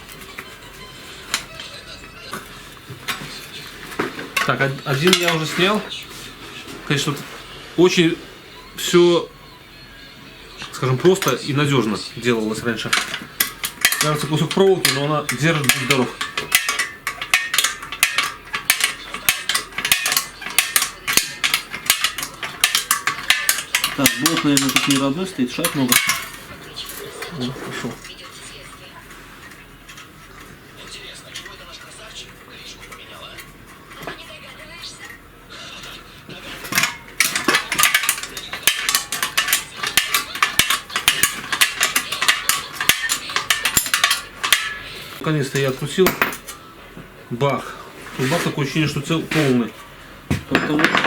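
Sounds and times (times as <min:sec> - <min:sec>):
wrench clicking rapidly: 0:36.8 - 0:44.8.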